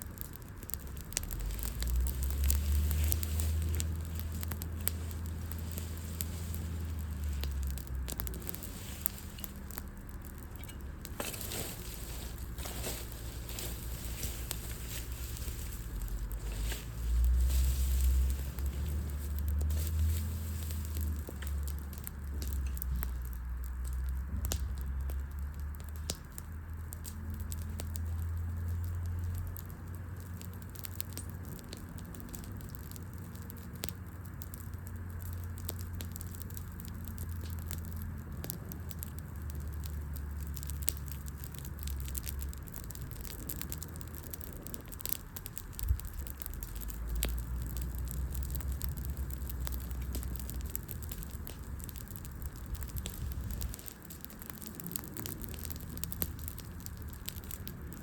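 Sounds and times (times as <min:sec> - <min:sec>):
campfire crackling: 0:00.0 - 0:58.0
low rumble: 0:01.1 - 0:25.7.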